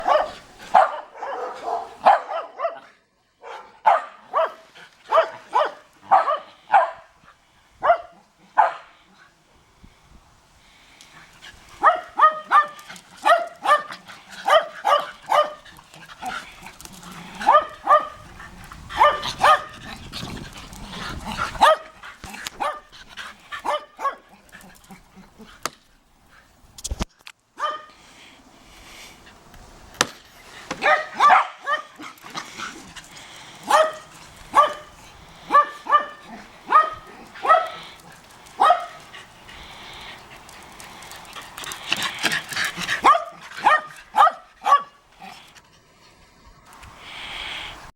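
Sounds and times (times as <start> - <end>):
dog barking: 0.0 - 7.1, 7.8 - 8.9, 11.8 - 15.6, 17.4 - 18.2, 19.0 - 19.8, 21.6 - 22.0, 22.6 - 22.9, 23.6 - 24.3, 27.6 - 27.9, 30.8 - 31.9, 33.7 - 34.9, 35.5 - 37.8, 38.6 - 39.0, 43.0 - 45.0.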